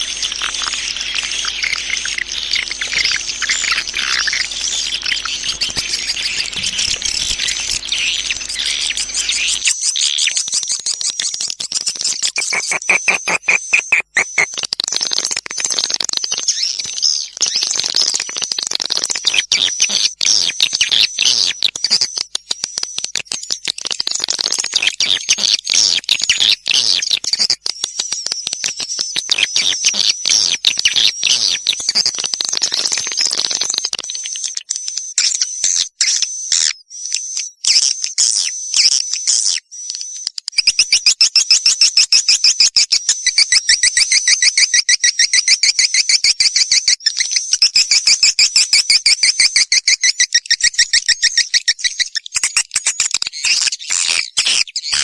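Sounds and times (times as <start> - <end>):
swiftlet twittering chirps: 0.0 - 22.2.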